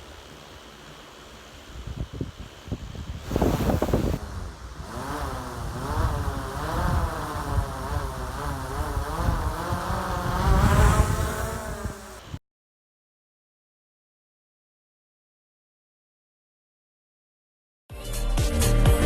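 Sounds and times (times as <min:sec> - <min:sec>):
wind rumble on microphone: 0:01.7 - 0:12.4
drone propellers whining: 0:03.2 - 0:12.4.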